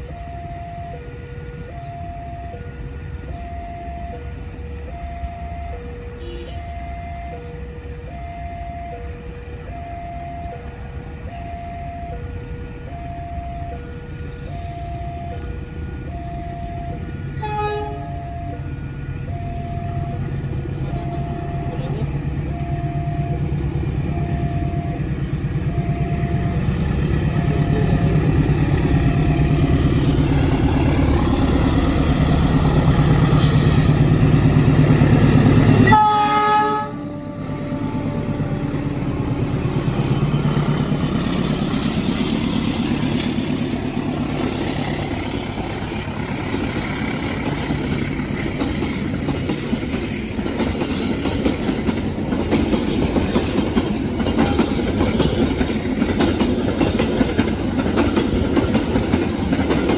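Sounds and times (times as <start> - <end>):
level-crossing warning tones: 0.0 - 59.9
train rumble: 0.0 - 59.9
train horn toot: 6.2 - 6.8, 17.1 - 18.7, 35.2 - 39.8.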